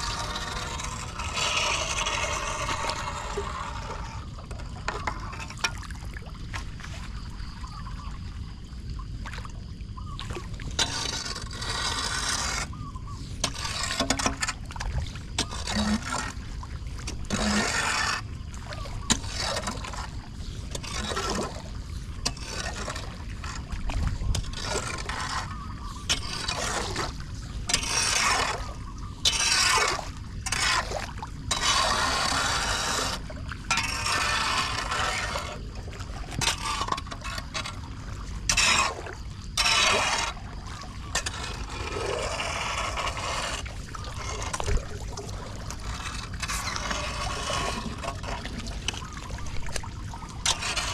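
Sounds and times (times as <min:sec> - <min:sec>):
floodwater splashing and draining: 0:00.0 - 0:50.9
water rushing: 0:29.7 - 0:50.9.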